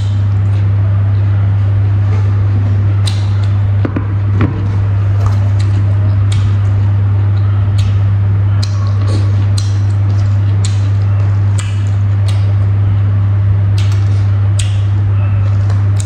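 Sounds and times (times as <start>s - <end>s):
man chewing: 0.0s - 16.0s
steady low hum: 0.0s - 16.0s.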